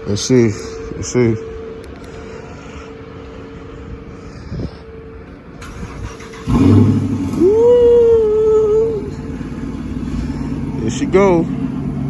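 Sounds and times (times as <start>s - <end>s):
car engine cranking and revving: 5.6s - 12.0s.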